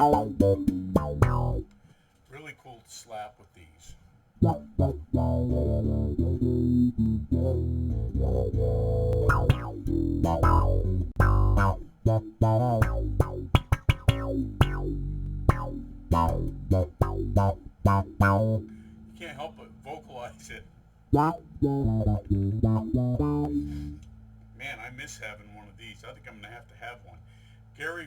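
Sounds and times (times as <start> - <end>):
slap bass with envelope filter: 0.0 - 1.7, 4.4 - 18.7, 21.1 - 24.2.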